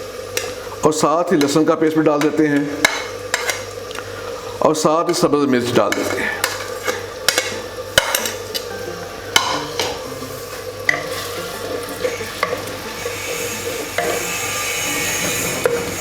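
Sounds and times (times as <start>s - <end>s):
onion sizzling in hot oil: 0.0s - 4.9s, 5.8s - 16.0s
spoon knocking against pot: 9.3s - 10.0s.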